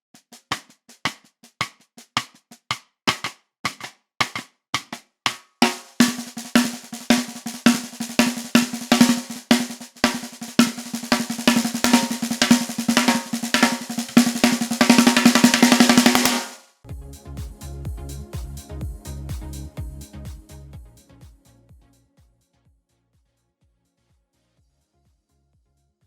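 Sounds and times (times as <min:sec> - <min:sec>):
snare drum played with sticks: 0:00.2 - 0:16.6.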